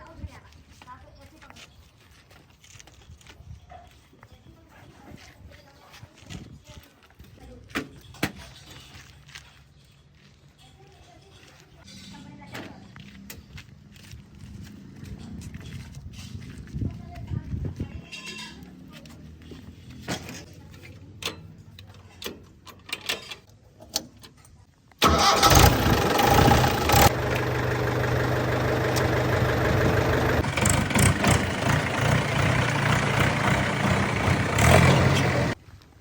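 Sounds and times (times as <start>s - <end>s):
diesel engine running: 25.0s - 35.6s.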